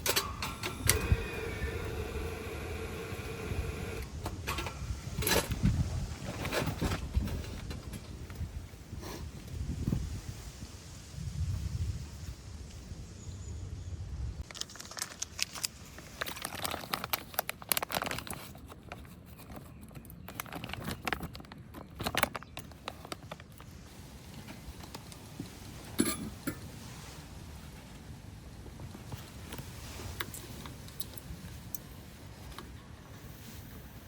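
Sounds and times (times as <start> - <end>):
crinkling handling noise: 14.4 - 34.0.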